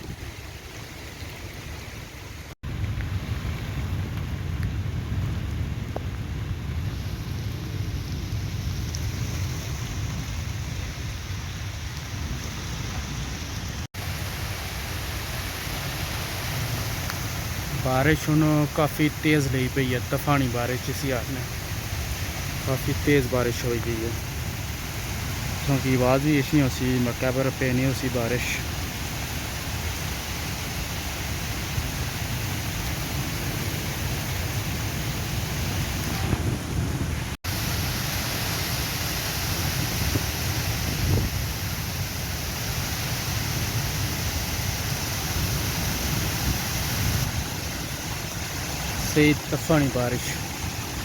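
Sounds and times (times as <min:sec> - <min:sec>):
heavy rain pouring on plants: 0:02.0 - 0:51.0
wind buffeting microphone: 0:31.4 - 0:37.9, 0:39.2 - 0:49.6.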